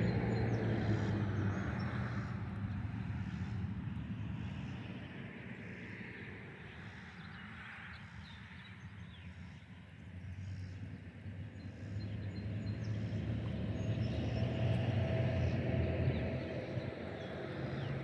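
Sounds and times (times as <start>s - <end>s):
motor vehicle engine hum: 0.0s - 3.6s.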